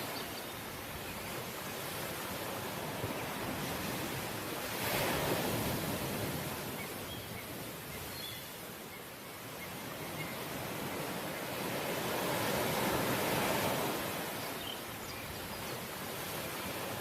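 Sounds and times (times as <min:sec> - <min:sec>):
sea waves breaking on shore: 0:00.0 - 0:17.0.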